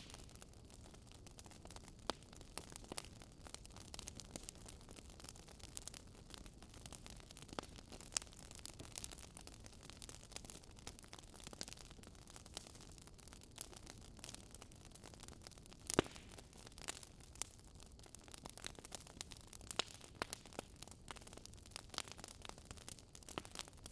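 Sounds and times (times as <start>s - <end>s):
wood fire crackling: 0.0s - 23.9s
fire pops: 15.9s - 17.5s, 21.9s - 23.9s.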